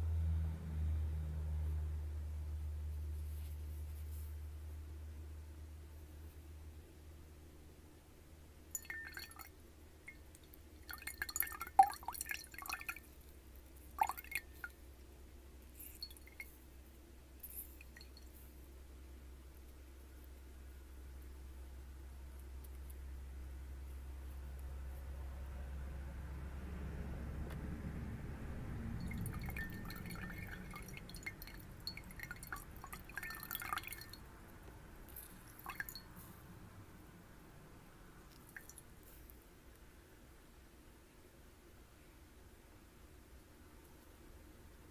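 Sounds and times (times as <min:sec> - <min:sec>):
water dripping into glass: 0:08.7 - 0:09.5, 0:10.1 - 0:13.1, 0:14.0 - 0:14.8, 0:15.8 - 0:16.6, 0:17.4 - 0:18.4, 0:29.0 - 0:34.3, 0:35.1 - 0:36.2, 0:38.3 - 0:38.8
small glassy clinks: 0:08.8 - 0:09.5, 0:29.0 - 0:34.2
low hum: 0:18.3 - 0:38.4.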